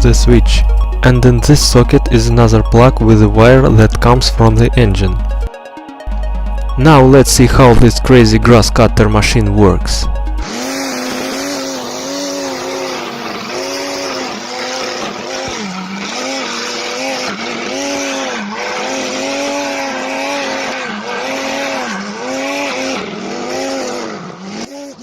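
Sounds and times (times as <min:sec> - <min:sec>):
electric lawn mower whining: 0:10.3 - 0:25.0
hiss of line cutting grass: 0:10.5 - 0:15.4.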